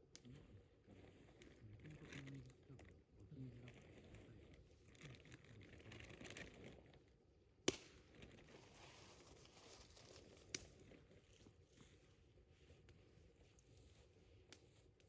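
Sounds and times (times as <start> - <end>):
sharp fire pops: 7.6 - 8.0
campfire crackling: 7.6 - 12.0.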